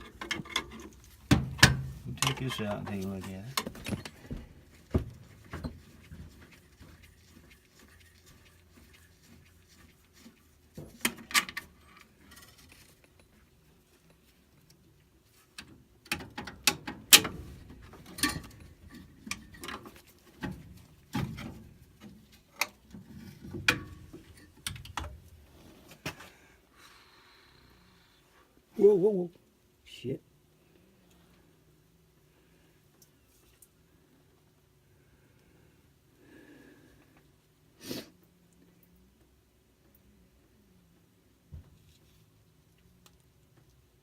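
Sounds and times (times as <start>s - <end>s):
metal parts clicking and clanking: 0.0s - 4.4s, 16.0s - 21.6s.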